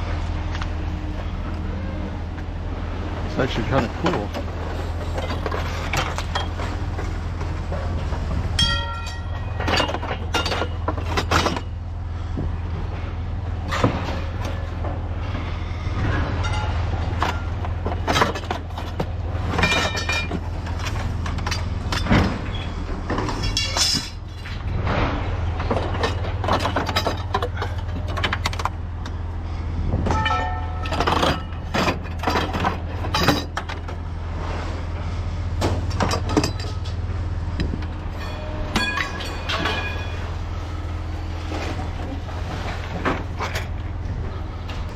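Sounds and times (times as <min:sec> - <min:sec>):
heavy engine droning: 0:00.0 - 0:44.9
metal clanking: 0:07.7 - 0:11.8, 0:13.6 - 0:29.1, 0:30.0 - 0:34.0, 0:35.6 - 0:40.9.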